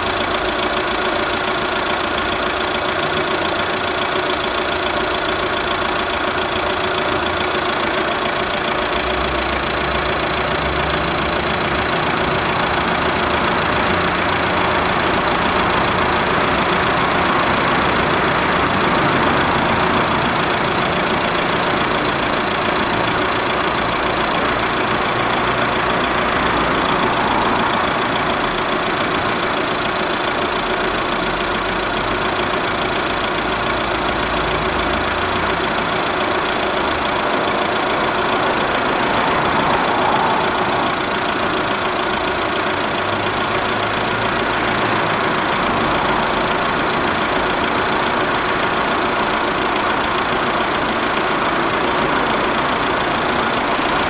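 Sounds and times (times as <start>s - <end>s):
car engine running steadily: 0.0s - 54.0s.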